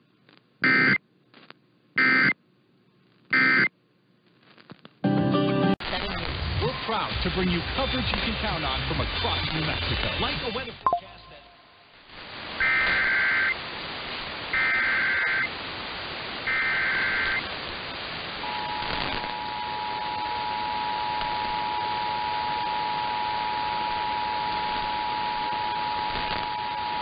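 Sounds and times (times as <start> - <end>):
radio static hiss: 0.0 - 2.4, 3.0 - 5.0, 5.8 - 27.0
two-tone alert signal: 10.9 - 11.1
digital data bursts: 14.5 - 15.6, 16.4 - 17.5.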